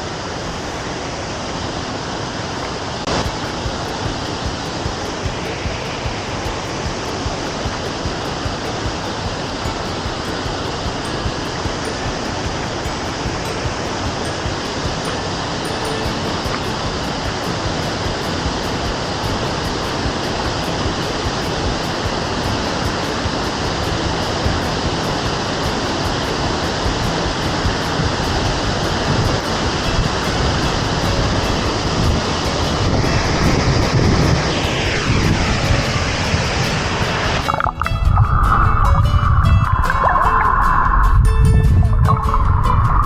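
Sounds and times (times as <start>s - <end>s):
creek and waterfall rushing: 0.0s - 43.0s.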